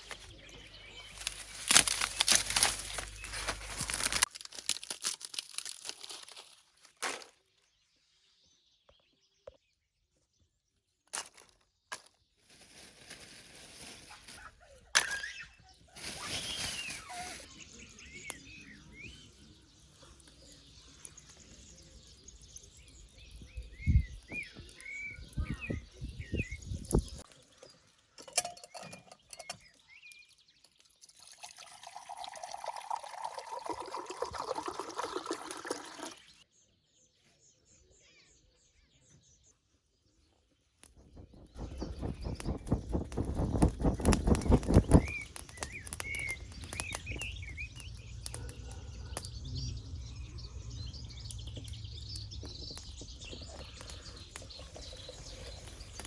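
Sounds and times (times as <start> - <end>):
birds chirping: 0.0 - 4.3, 13.8 - 56.0
liquid pouring: 30.7 - 36.4.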